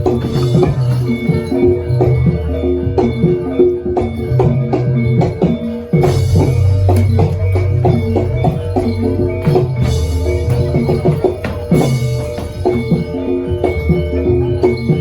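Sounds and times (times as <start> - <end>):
metal keyed instruments playing: 5.7 - 15.0
drum strokes: 6.0 - 13.9.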